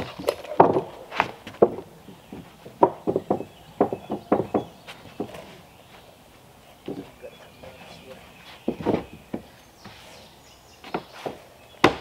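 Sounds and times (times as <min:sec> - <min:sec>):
wooden knocks and thumps: 0:00.0 - 0:05.6, 0:06.8 - 0:07.2, 0:08.6 - 0:10.0, 0:10.8 - 0:12.0.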